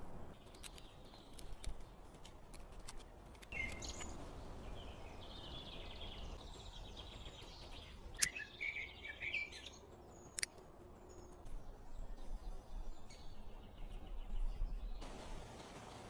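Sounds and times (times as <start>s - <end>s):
small birds chirping: 0.3s - 15.0s
sharp clicks: 7.6s - 8.4s, 10.2s - 10.6s.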